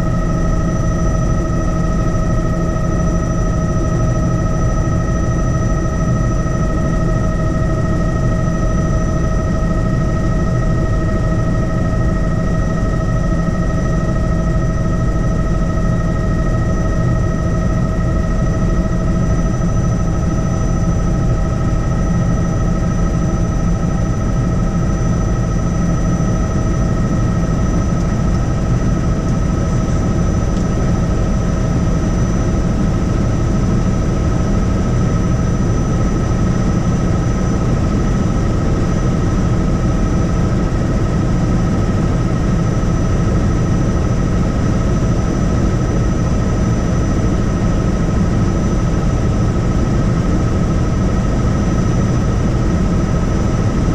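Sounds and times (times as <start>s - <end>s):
helicopter rotor and engine rumble: 0.0s - 53.9s.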